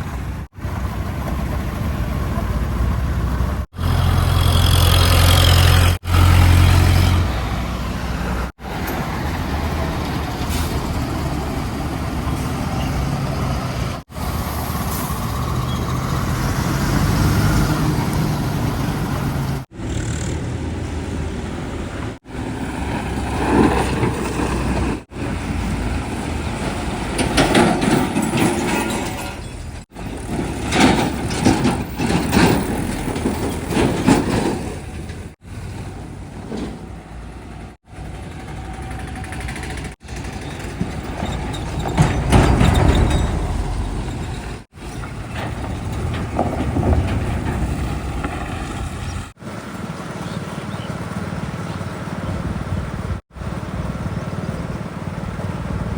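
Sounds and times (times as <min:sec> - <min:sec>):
diesel engines running: 0:00.0 - 0:55.9
sharp knocks and clatter: 0:27.0 - 0:35.4, 0:39.3 - 0:49.0.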